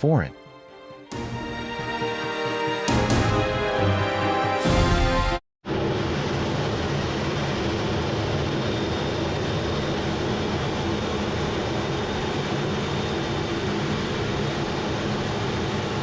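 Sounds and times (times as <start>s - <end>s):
jet engine roar: 5.7s - 16.0s.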